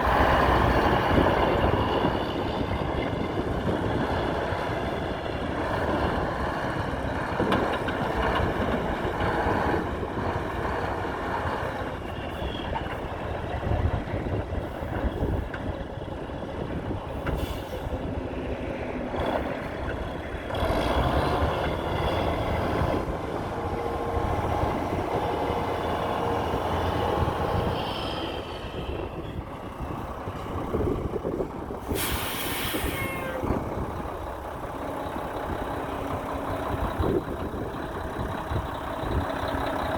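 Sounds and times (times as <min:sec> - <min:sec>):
truck diesel engine running: 0:00.0 - 0:39.9
air brake hiss: 0:17.3 - 0:17.9, 0:31.8 - 0:33.2.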